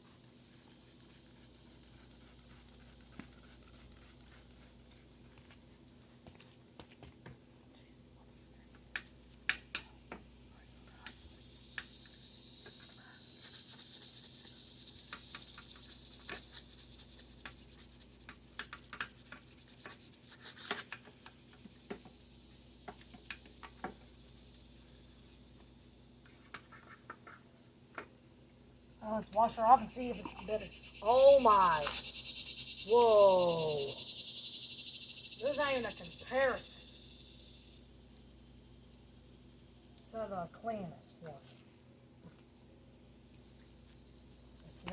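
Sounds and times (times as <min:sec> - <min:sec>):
stiff brush scrubbing: 0:00.0 - 0:06.8, 0:10.9 - 0:28.8, 0:29.4 - 0:32.1.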